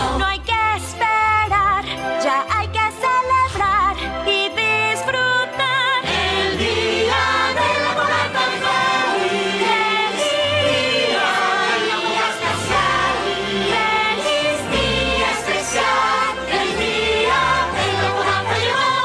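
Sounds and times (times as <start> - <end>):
orchestral backing: 4.4 - 19.0
choir singing: 6.0 - 19.0.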